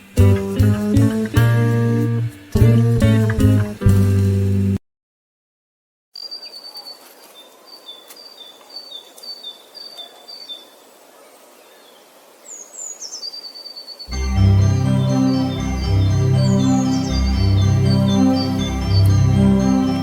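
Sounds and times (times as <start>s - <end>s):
faint outdoor background hiss: 0.0s - 4.8s, 6.2s - 20.0s
songbird singing: 6.2s - 20.0s.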